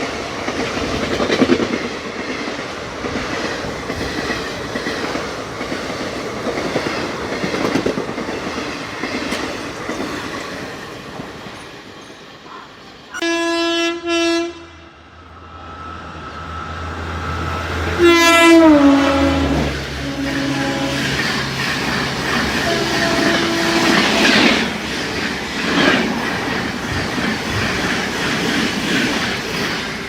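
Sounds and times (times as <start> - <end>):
train wheels clattering over rail joints: 0.3 - 12.2, 20.9 - 30.0
locomotive horn blasts: 13.2 - 14.9, 17.9 - 21.2, 22.6 - 24.2.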